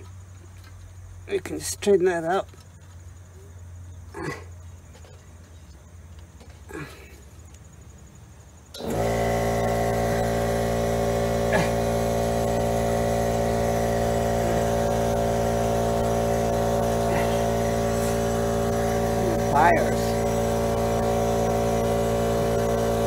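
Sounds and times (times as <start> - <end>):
motor humming: 8.7 - 23.0.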